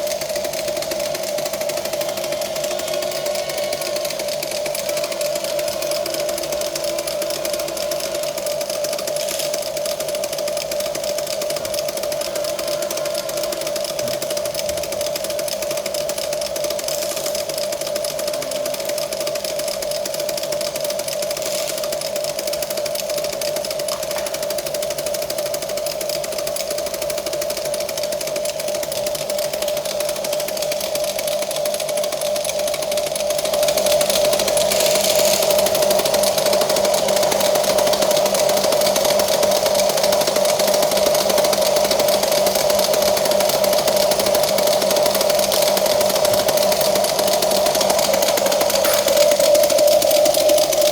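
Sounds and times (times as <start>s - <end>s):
toy electric motors whining: 0.0s - 50.9s.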